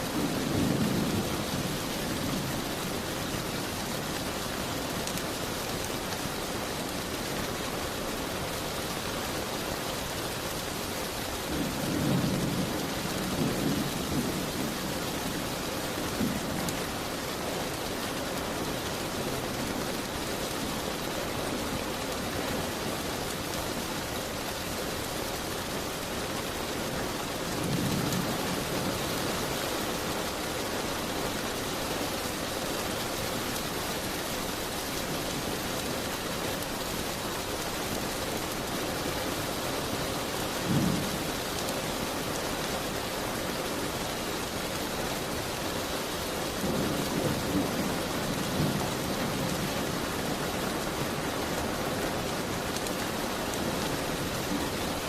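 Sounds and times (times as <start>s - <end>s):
rain pattering on a window: 0.0s - 55.0s.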